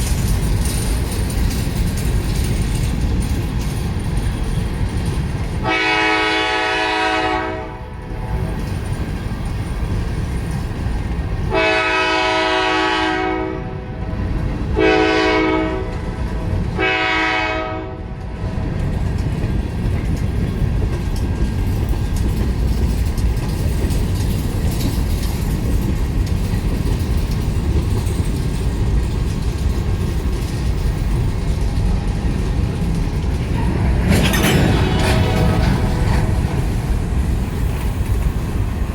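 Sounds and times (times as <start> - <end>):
train rumbling and clattering past: 0.0 - 38.9
train horn blasts: 5.6 - 8.0, 11.5 - 14.2, 14.8 - 16.1, 16.8 - 18.2, 34.6 - 36.0.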